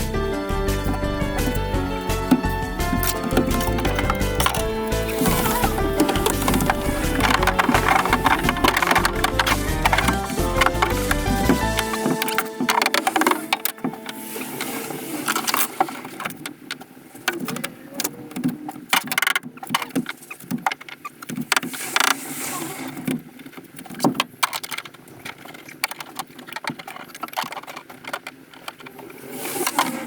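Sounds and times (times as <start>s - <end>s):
clicks and knocks of hand work: 0.6s - 14.1s, 15.3s - 22.2s.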